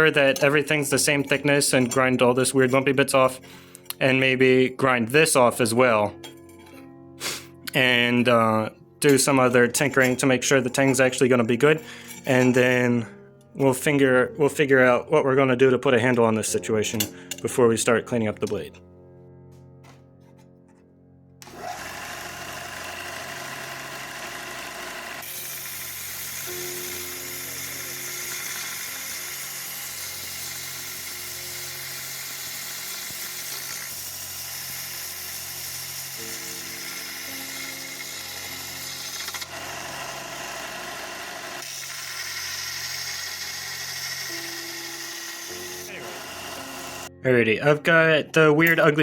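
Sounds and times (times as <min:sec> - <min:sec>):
soft background music: 0:00.0 - 0:22.4, 0:25.2 - 0:49.0
power grinder grinding steel: 0:21.4 - 0:47.1.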